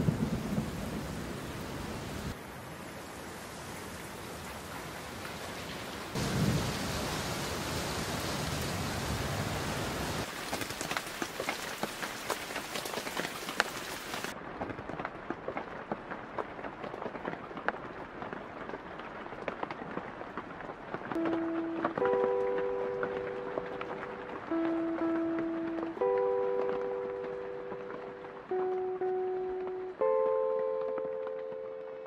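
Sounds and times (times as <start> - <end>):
thunder rumbling: 0.0 - 2.4, 6.2 - 10.3
heavy rain: 0.0 - 32.0.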